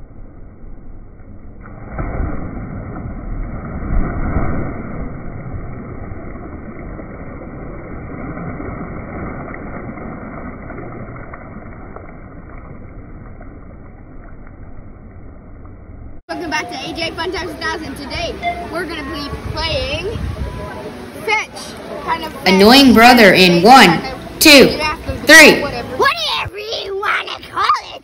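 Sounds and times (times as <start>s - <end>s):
water splashing: 1.6s - 15.8s
pool water bubbling from jets: 1.6s - 26.2s.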